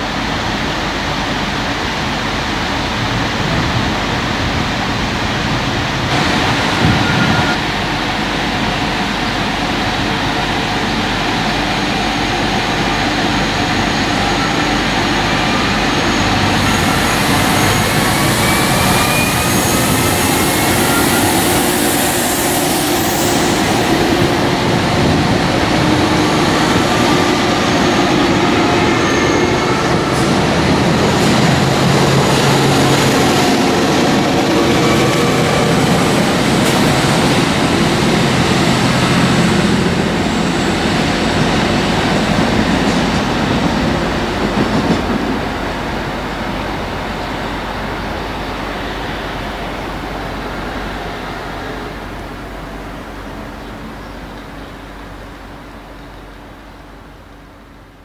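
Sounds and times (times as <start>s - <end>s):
train pulling away: 0.0s - 58.0s
faint rising whine: 14.0s - 41.4s.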